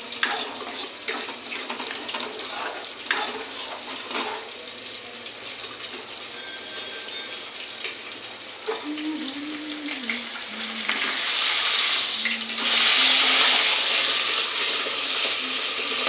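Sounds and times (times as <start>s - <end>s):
meat sizzling in a pan: 0.0s - 8.9s, 10.2s - 16.0s
spoon scraping a pan: 0.2s - 4.5s.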